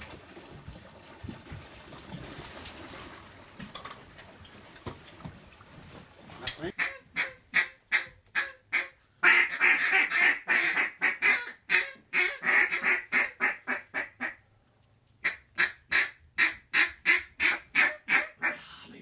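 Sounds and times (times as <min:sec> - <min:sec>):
duck call quacking: 0:06.7 - 0:14.4, 0:15.2 - 0:18.6.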